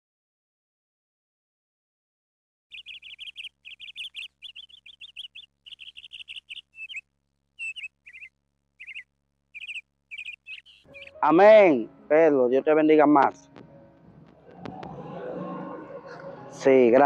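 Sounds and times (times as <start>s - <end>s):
small birds chirping: 2.7s - 11.7s.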